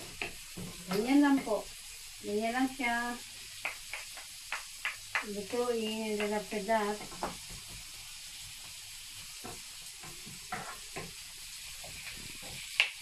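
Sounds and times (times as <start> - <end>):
vegetables sizzling in a frying pan: 0.0 - 13.0
wooden utensils scraping a pan: 10.0 - 11.2.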